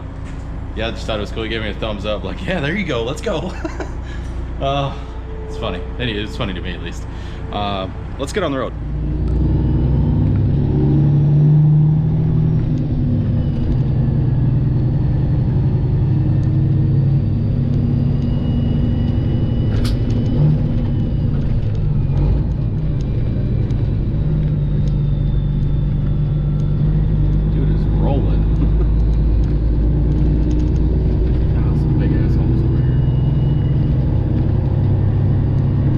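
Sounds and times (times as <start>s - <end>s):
diesel truck engine rumbling: 0.0s - 35.9s.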